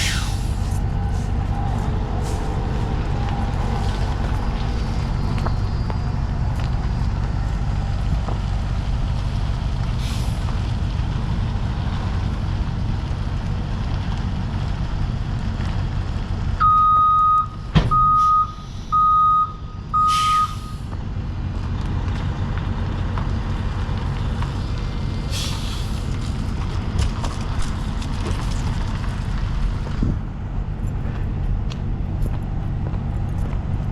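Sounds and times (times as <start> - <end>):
air hisses: 0.0 - 0.8, 25.3 - 26.1
diesel truck engine running: 0.0 - 33.9
backup alarm beeping: 16.6 - 20.8.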